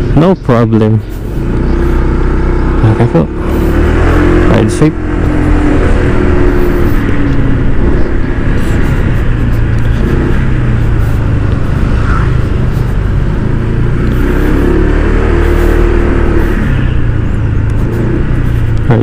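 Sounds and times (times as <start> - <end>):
scooter engine running: 1.0 - 19.0
wind noise on microphone: 3.8 - 13.4.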